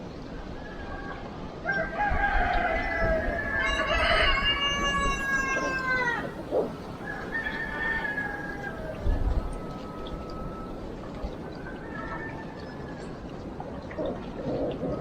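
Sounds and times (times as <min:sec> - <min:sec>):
rooster crowing: 0:01.6 - 0:11.0.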